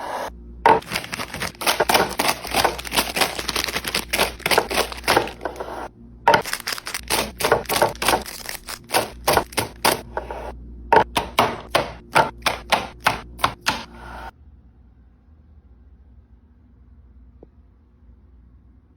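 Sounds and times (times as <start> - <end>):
wrapped snacks dropping into container: 0.8 - 5.4, 6.4 - 9.9.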